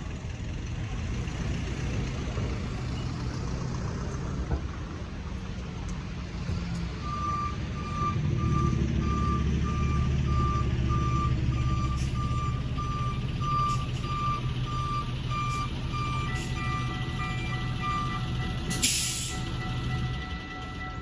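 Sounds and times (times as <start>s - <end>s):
low vehicle rumble: 0.0s - 21.0s
electronic crossing bell beeping: 11.0s - 21.0s.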